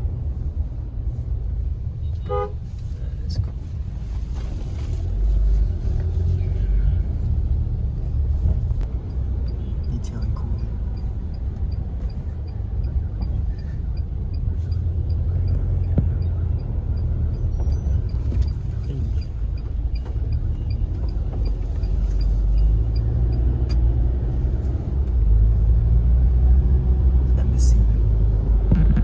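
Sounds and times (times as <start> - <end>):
car rumble inside cabin: 0.0 - 29.0
faint regular ticking: 8.9 - 17.4, 18.0 - 25.3.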